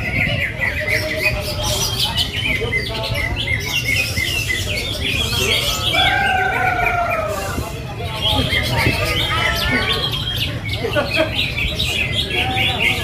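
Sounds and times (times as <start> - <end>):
birds chirping and trilling: 0.0 - 13.0.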